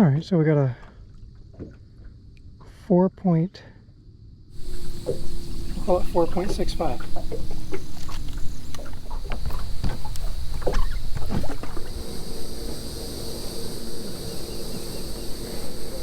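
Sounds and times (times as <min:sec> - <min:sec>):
wind and water rumble: 0:04.0 - 0:16.0
motor hum with high whine: 0:04.5 - 0:16.0.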